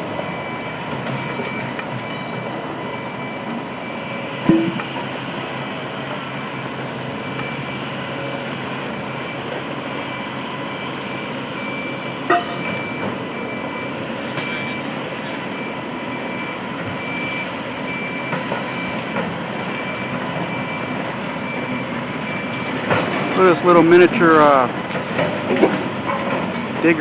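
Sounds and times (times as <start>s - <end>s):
construction machinery running: 0.0s - 27.0s
faint high beeps: 11.6s - 14.9s.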